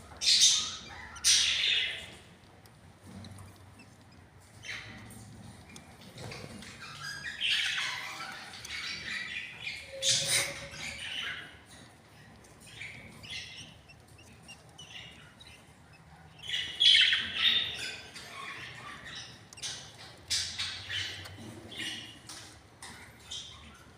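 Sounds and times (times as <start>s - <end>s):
budgies squawking: 0.1s - 2.3s, 4.1s - 23.9s.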